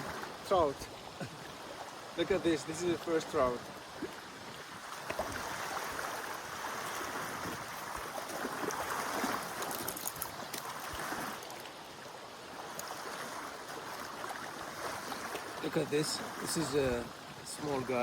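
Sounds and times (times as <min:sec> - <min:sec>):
stream water rushing: 0:00.0 - 0:18.0
small clicks and knocks: 0:09.6 - 0:10.7.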